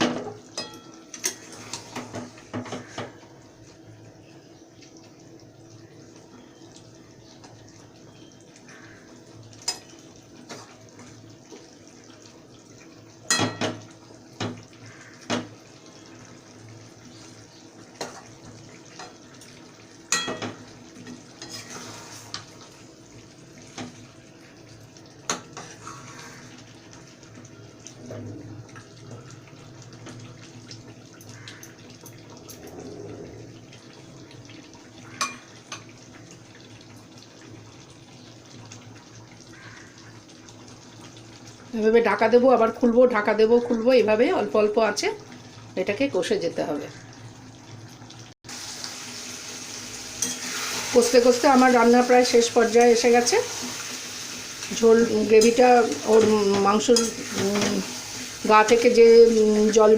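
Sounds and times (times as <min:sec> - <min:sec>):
meat sizzling: 0:05.0 - 0:46.1, 0:47.0 - 0:59.9
metal spoon scraping a pan: 0:21.4 - 0:22.5, 0:50.2 - 0:51.1.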